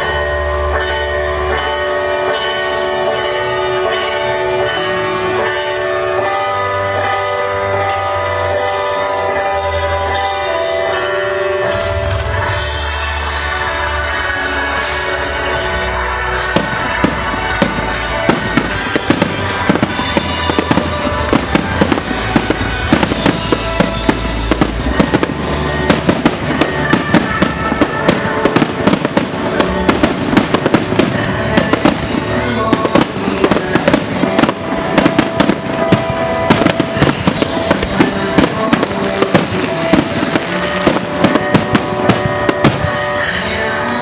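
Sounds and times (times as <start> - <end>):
fireworks bursting with sharp bangs: 0.0 - 44.0
music: 0.0 - 44.0.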